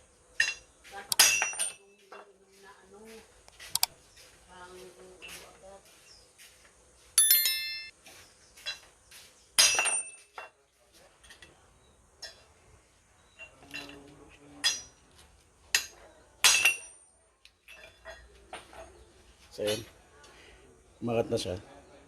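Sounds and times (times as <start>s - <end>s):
hammer striking metal socket: 0.4s - 1.8s.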